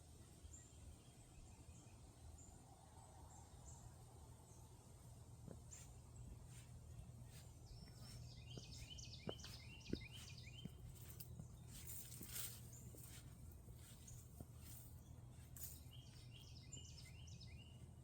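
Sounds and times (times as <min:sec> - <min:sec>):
footsteps on a trail: 0:05.5 - 0:18.0
faint bird chirping: 0:05.7 - 0:18.0.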